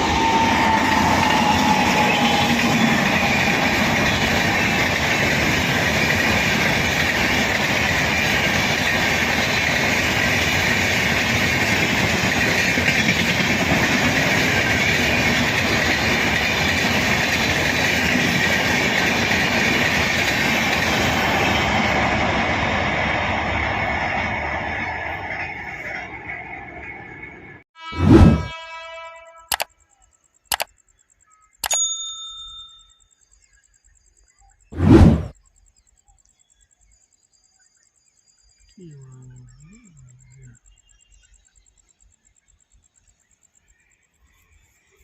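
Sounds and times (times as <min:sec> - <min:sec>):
train wheels clattering on rails: 0:00.0 - 0:27.4.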